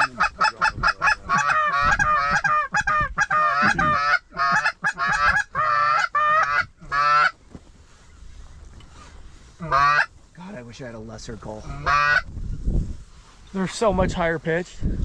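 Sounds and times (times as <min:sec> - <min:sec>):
goose call honks and clucks: 0:00.0 - 0:07.4, 0:09.6 - 0:10.1, 0:11.6 - 0:12.3.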